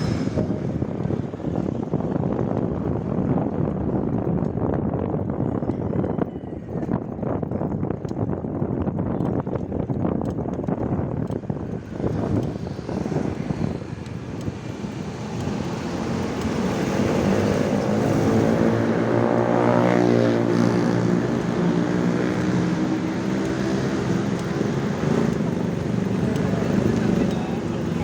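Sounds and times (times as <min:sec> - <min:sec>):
rushing wind noise of riding: 0:00.0 - 0:28.0
passing engine: 0:11.8 - 0:28.0.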